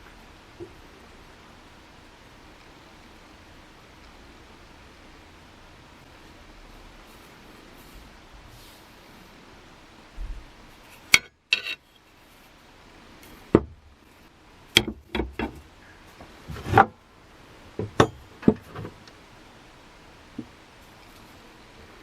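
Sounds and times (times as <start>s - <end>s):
sharp knocks and clinks: 17.8s - 18.6s.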